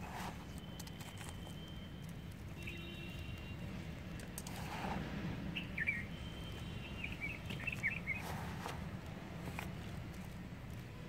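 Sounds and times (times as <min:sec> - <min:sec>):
fingers scratching in soil: 0:00.0 - 0:02.6, 0:04.0 - 0:05.2, 0:06.4 - 0:10.9
small birds chirping: 0:00.0 - 0:10.4.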